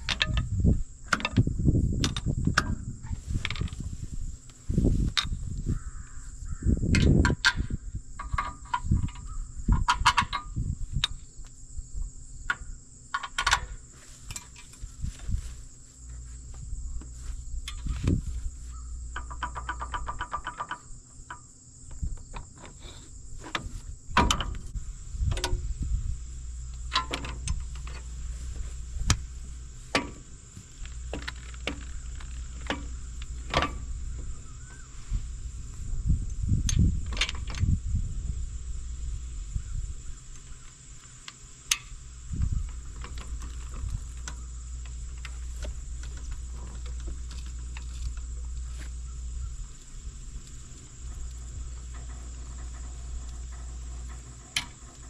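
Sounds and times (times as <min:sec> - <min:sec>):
metal clanks and knocks: 0:00.0 - 0:03.8, 0:19.1 - 0:21.4, 0:23.4 - 0:25.8, 0:26.7 - 0:34.8, 0:49.8 - 0:55.0
insects trilling: 0:00.0 - 0:55.0.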